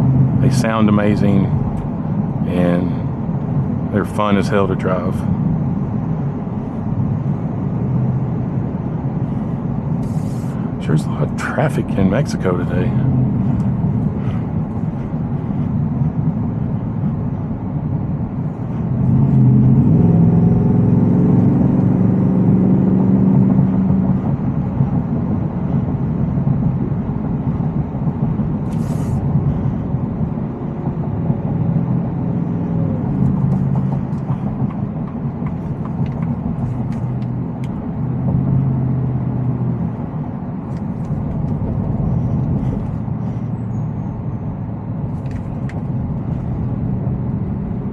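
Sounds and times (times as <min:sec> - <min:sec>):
truck engine running: 0:00.0 - 0:47.9
brief hiss: 0:28.7 - 0:29.2.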